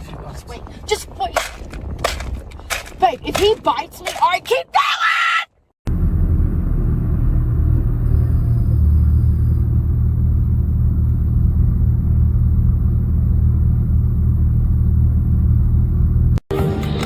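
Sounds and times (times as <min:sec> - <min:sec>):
loud steady low rumble: 0:05.9 - 0:16.9.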